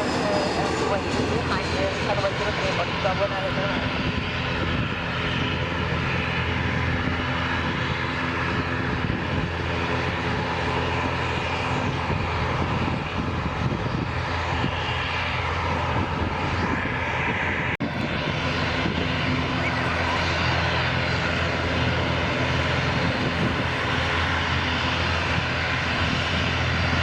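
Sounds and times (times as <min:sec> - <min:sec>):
airliner engines running: 0:00.0 - 0:27.0.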